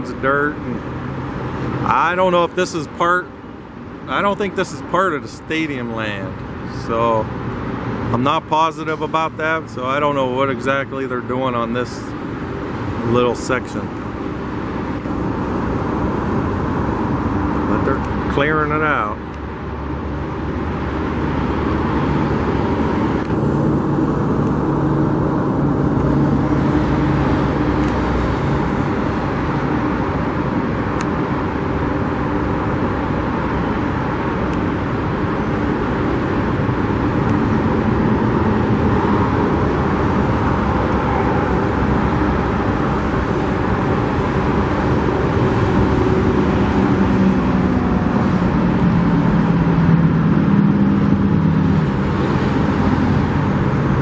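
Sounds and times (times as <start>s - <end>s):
faint low engine hum: 0.0s - 54.0s
vehicles on road: 0.0s - 54.0s.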